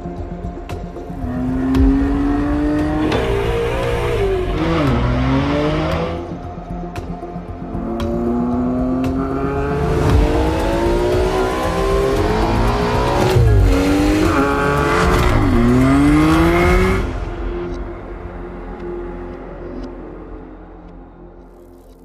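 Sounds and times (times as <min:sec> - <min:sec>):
car engine accelerating hard: 0:01.3 - 0:06.4, 0:07.8 - 0:17.2.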